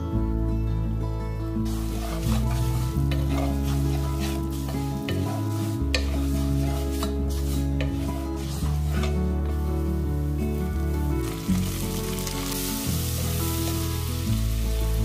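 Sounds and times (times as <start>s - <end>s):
background music with chords: 0.0s - 15.0s
noodles sizzling in a frying pan: 1.6s - 15.0s
spatula scraping and tapping pan: 1.7s - 10.0s.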